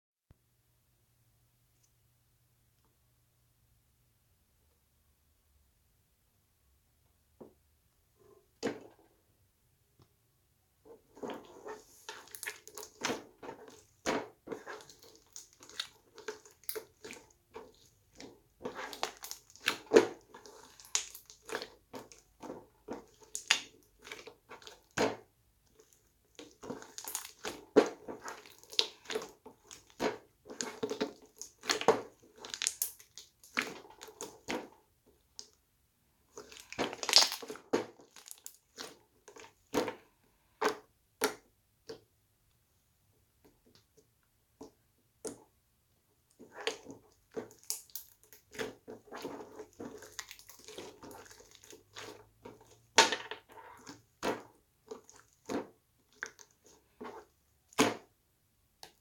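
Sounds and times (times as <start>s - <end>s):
slime squishing and popping: 12.1s - 25.2s, 26.4s - 34.6s, 36.4s - 38.9s, 46.5s - 53.2s.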